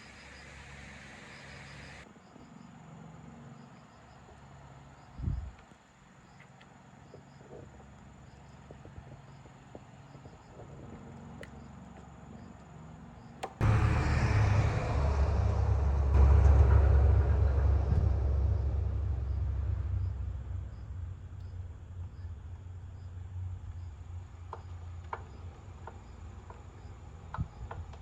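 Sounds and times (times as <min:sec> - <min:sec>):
faint crickets chirping: 0:00.0 - 0:28.0
motorbike engine rumbling: 0:13.6 - 0:25.9.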